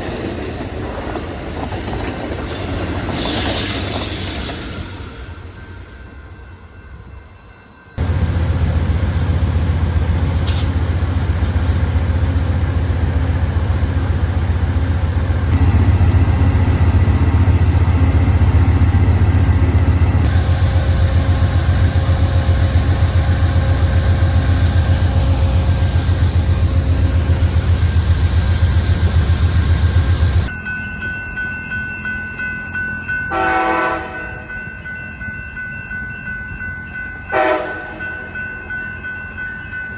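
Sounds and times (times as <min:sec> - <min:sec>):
diesel locomotive idling: 0:08.0 - 0:30.5
train horn blast: 0:33.3 - 0:34.5, 0:37.3 - 0:38.0.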